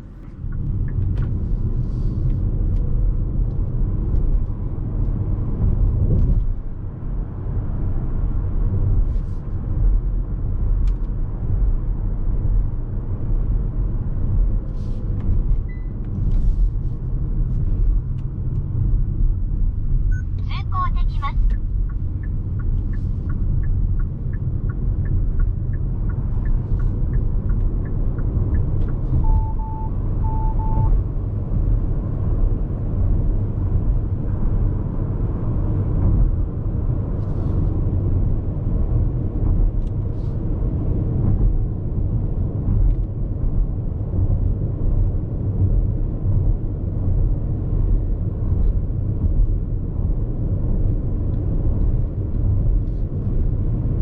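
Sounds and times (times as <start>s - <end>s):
tyre and road noise in car: 0.0s - 54.0s
short electronic beeps: 29.2s - 31.0s.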